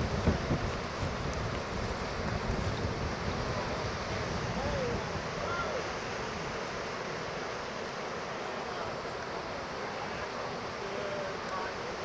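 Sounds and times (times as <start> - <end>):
surf breaking on beach: 0.0 - 7.3
wind: 0.0 - 12.0.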